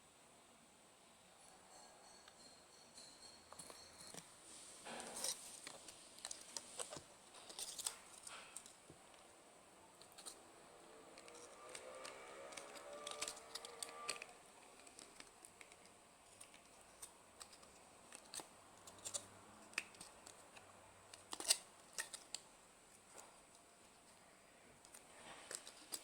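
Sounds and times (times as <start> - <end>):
small parts clicking and tapping: 2.0 - 9.3, 11.1 - 24.2, 24.8 - 26.0.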